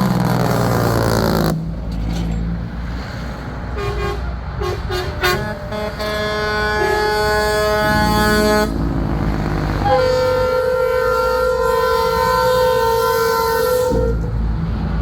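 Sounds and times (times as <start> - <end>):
truck engines rumbling: 0.0 - 15.0
truck air horns: 3.6 - 14.6.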